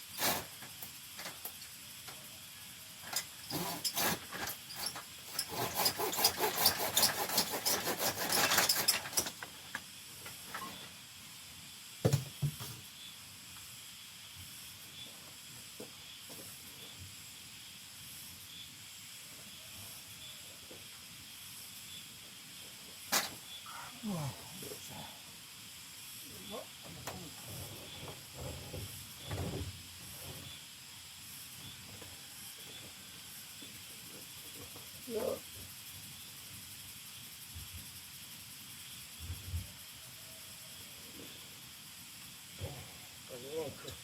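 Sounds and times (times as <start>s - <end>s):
clattering and scraping: 3.1s - 9.5s
steady faint hiss: 9.3s - 44.0s.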